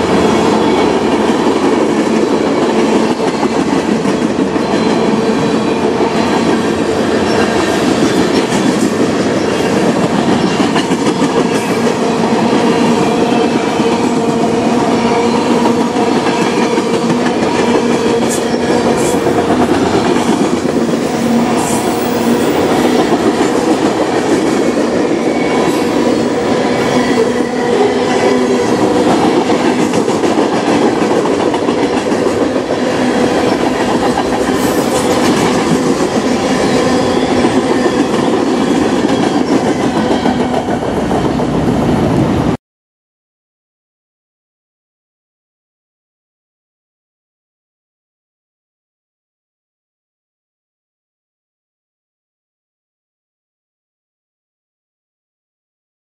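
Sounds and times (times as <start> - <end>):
steel wheels running on rails: 15.2 - 42.0.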